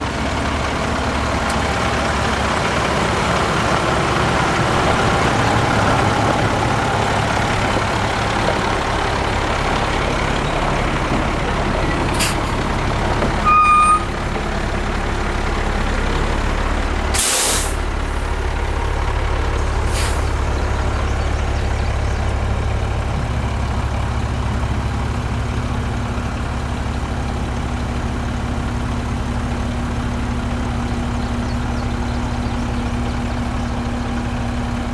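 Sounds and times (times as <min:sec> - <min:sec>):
diesel truck engine idling: 0:00.0 - 0:34.9
air hissing: 0:12.1 - 0:12.6, 0:17.1 - 0:18.8, 0:19.8 - 0:20.4
loud beep: 0:13.4 - 0:14.1.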